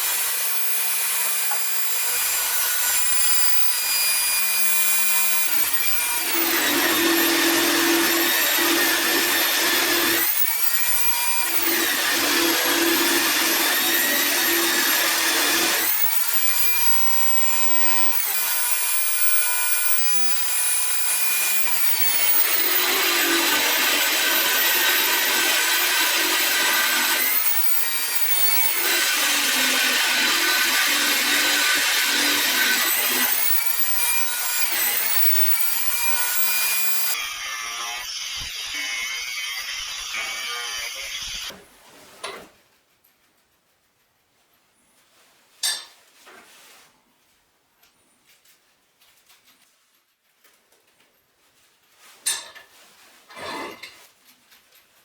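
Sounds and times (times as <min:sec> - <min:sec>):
angle grinder whining: 0:00.0 - 0:41.5
grinder cutting metal: 0:00.0 - 0:41.5.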